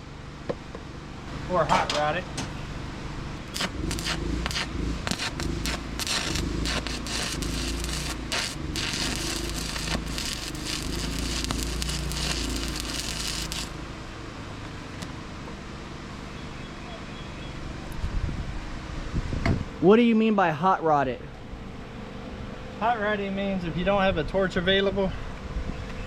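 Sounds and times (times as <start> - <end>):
arc welding crackle: 3.4 - 13.8.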